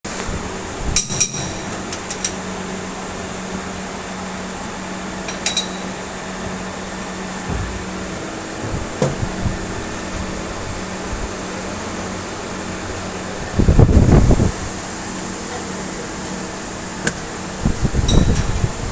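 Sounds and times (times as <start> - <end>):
machine hum: 0.1 - 18.9
ringing metallic clinks: 1.0 - 2.2, 5.3 - 6.0, 18.1 - 18.5
dull knocks: 7.4 - 9.6.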